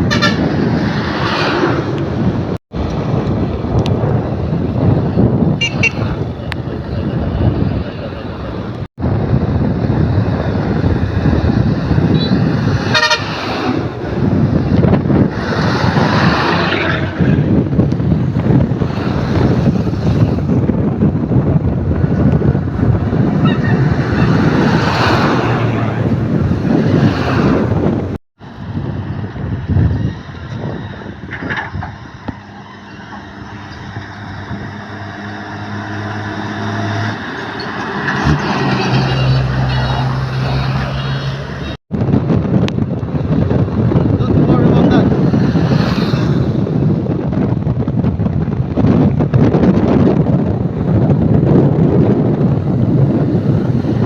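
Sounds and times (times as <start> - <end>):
truck horn toot: 0.0 - 0.6, 5.6 - 6.3, 12.1 - 13.7
truck engine and road rumble: 0.0 - 54.0
wind noise on microphone: 0.0 - 54.0
truck engine humming: 30.5 - 41.8.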